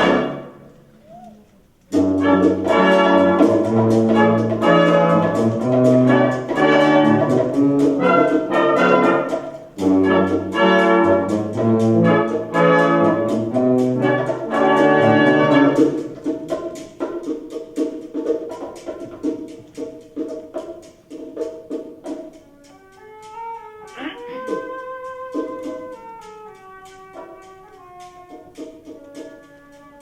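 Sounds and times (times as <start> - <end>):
military brass band playing: 0.0 - 0.8, 1.9 - 16.8, 24.1 - 30.0.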